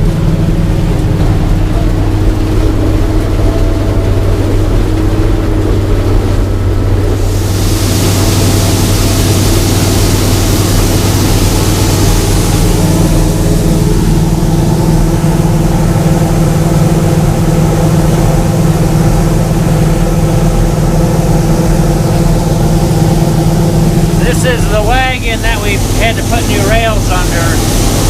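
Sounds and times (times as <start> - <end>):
combine harvester engine hum: 0.0 - 28.0
high hiss: 7.2 - 14.3, 23.1 - 28.0.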